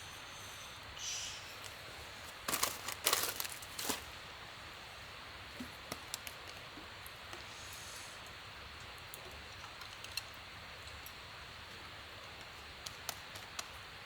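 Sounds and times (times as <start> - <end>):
faint hiss: 0.0 - 6.2, 6.9 - 9.0
crinkling and rustling: 1.6 - 4.2.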